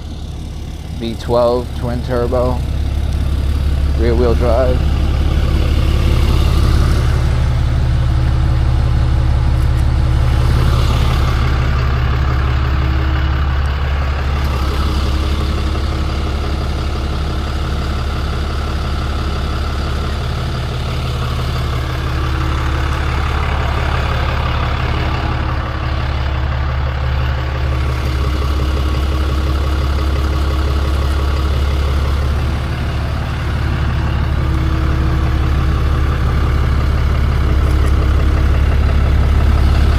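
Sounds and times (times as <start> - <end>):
truck engine humming: 0.0 - 39.9.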